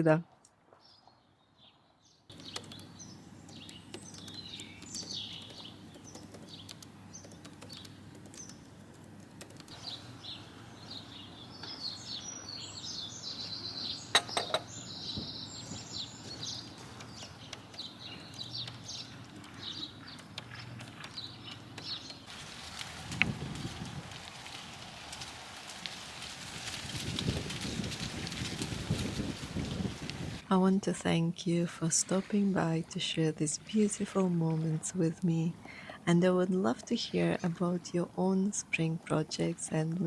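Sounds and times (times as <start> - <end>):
songbirds chirping and singing: 0.8 - 22.3, 27.6 - 40.0
sharp clicks: 2.3 - 9.8.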